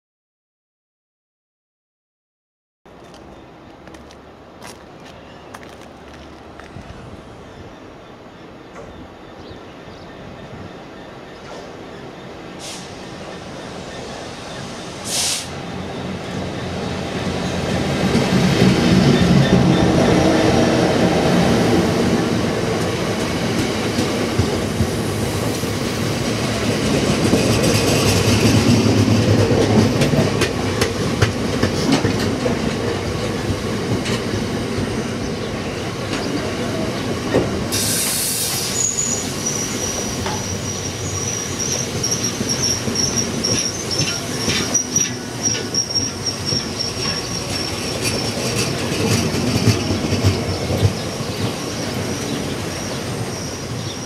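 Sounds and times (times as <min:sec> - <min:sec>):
freight train wheels rumbling on rails: 0:02.9 - 0:54.0
brief hiss: 0:12.6 - 0:13.0, 0:14.9 - 0:15.6, 0:37.7 - 0:40.4
wheels clacking over rail joints: 0:22.2 - 0:35.0, 0:41.6 - 0:54.0
high wheel squeal: 0:37.7 - 0:48.7, 0:51.6 - 0:54.0.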